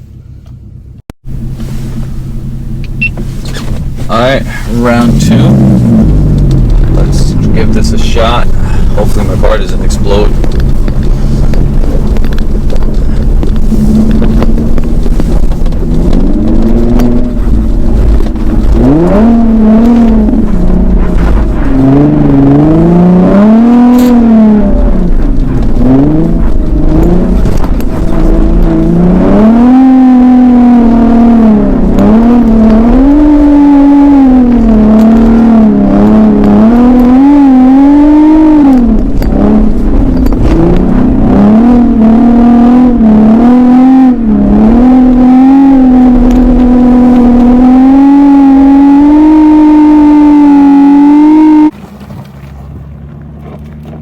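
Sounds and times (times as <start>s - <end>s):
tires spinning on snow: 1.3s - 54.0s
car engine revving hard: 2.9s - 51.8s.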